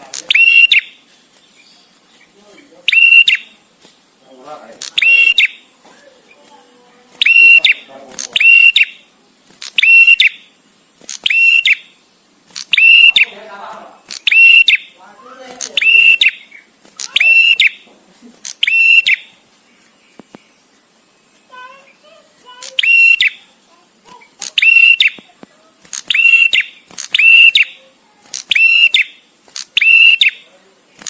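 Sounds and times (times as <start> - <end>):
bird calling shrill notes: 0.0 - 3.6, 4.8 - 5.7, 7.2 - 13.4, 14.0 - 15.0, 15.6 - 17.9, 18.5 - 19.4, 20.0 - 23.6, 24.3 - 25.3, 25.9 - 30.5.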